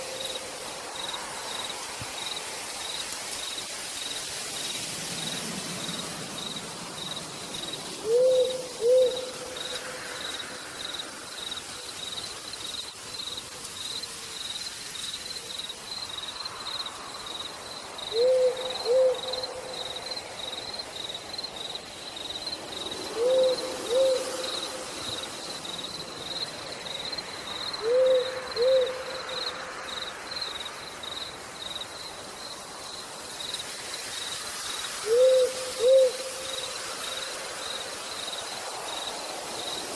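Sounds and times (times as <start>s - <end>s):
faint rain hiss: 0.0s - 39.9s
owl hooting: 8.0s - 9.4s, 18.1s - 19.6s, 23.1s - 24.7s, 27.8s - 29.3s, 35.0s - 36.6s.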